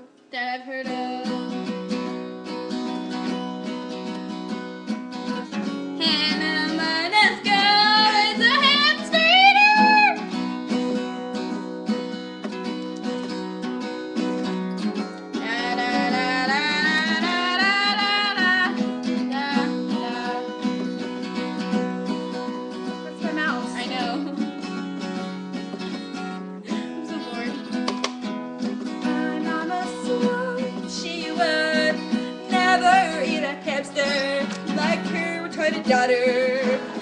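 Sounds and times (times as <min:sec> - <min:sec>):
acoustic guitar strumming: 0:00.0 - 0:37.0
person singing wordlessly: 0:00.3 - 0:01.5, 0:06.0 - 0:10.3, 0:15.4 - 0:20.7, 0:23.0 - 0:24.6, 0:26.6 - 0:27.8, 0:29.0 - 0:37.0.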